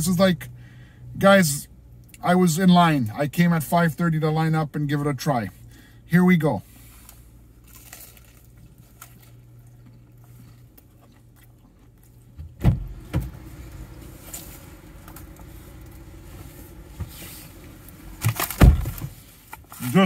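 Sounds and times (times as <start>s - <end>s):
faint crinkling: 6.6s - 12.4s
man chewing: 6.9s - 12.4s
car cabin hum: 8.5s - 20.0s.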